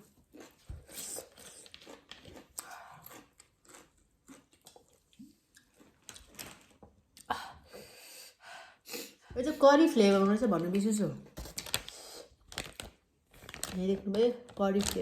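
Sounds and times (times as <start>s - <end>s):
person chewing food: 0.0s - 7.3s.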